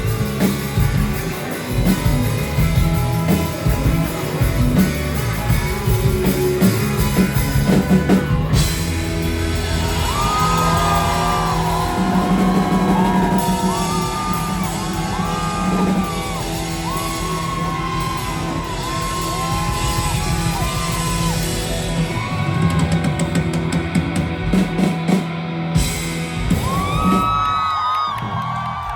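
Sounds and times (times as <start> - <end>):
rock band playing: 0.0 - 28.8.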